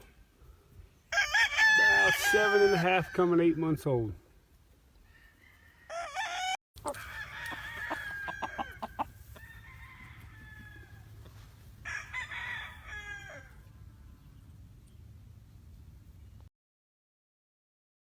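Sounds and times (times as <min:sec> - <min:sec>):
roosters crowing: 0:01.1 - 0:04.0, 0:05.0 - 0:14.0.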